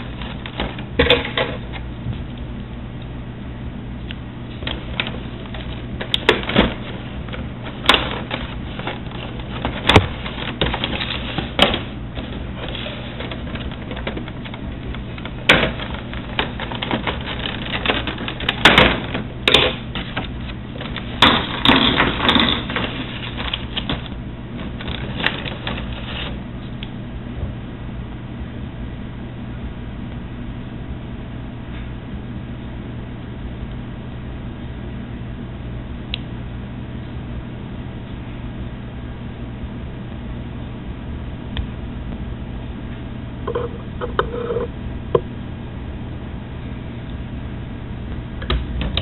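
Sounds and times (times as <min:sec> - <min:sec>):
steady low hum: 0:00.0 - 0:49.0
packaging clicks and rustling: 0:04.6 - 0:26.3.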